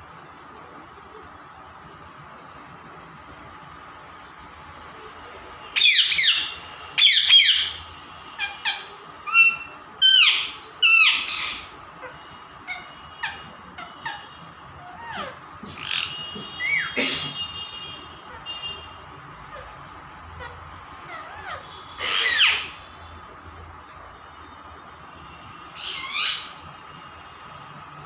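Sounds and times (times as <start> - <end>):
parrot screeching: 5.8 - 7.8, 8.4 - 17.0, 19.5 - 22.8, 25.7 - 26.6.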